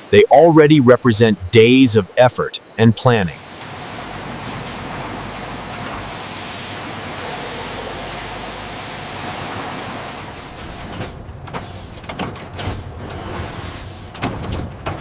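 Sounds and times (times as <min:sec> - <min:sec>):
mechanical knocks and clatter: 0:10.6 - 0:15.0.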